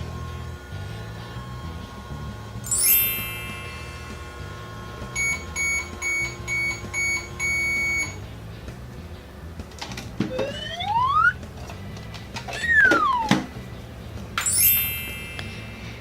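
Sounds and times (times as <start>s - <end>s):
toy electronic beeps: 5.2s - 8.2s, 10.3s - 11.4s, 12.6s - 13.3s.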